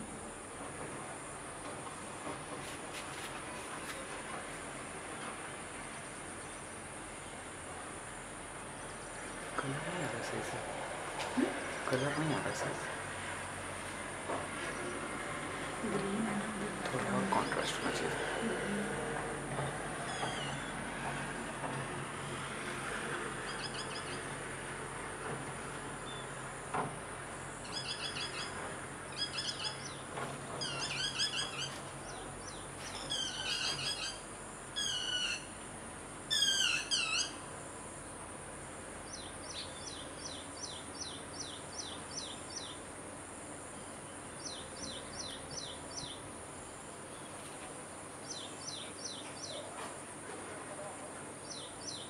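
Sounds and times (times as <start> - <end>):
birds chirping: 8.4 - 19.0, 19.6 - 24.5, 27.6 - 35.5, 36.3 - 37.5, 39.0 - 42.9, 43.8 - 47.4, 48.2 - 49.8, 51.3 - 52.0.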